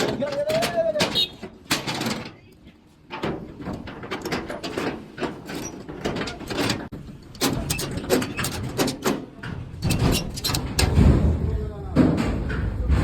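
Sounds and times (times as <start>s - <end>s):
vehicle knocking and clattering: 3.0s - 13.0s.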